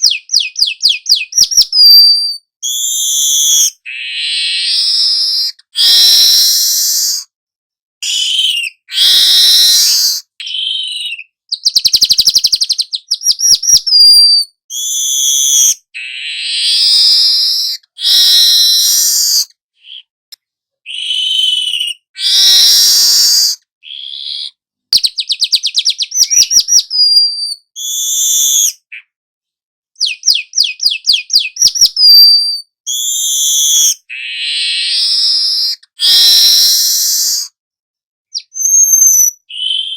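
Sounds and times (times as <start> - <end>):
short falling whistle: 4.5 - 7.3, 8.0 - 11.2, 16.5 - 19.5, 20.9 - 23.6, 26.2 - 28.9, 34.8 - 37.6, 38.4 - 39.9
bird ticking trills: 8.0 - 14.2, 25.0 - 27.0
bird chattering calls: 8.0 - 20.1.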